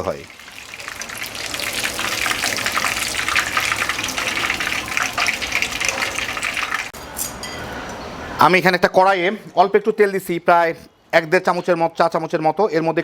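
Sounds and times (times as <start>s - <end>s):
chicken deep-frying in oil: 0.0s - 7.0s.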